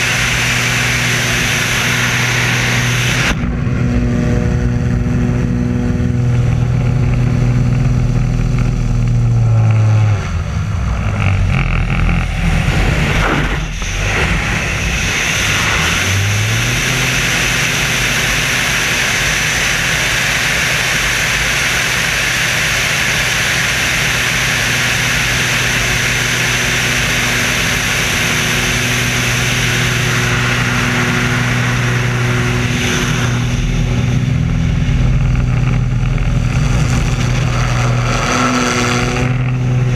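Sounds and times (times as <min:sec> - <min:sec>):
loud rushing hiss: 0:00.0 - 0:03.4, 0:12.3 - 0:34.4
airplane engines in flight: 0:00.0 - 0:39.9.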